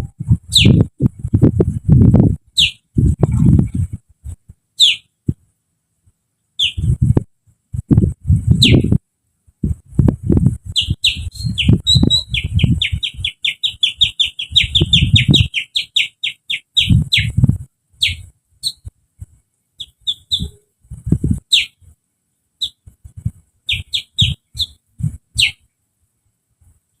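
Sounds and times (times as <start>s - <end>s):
man whistling bird chirps: 10.8s - 17.3s.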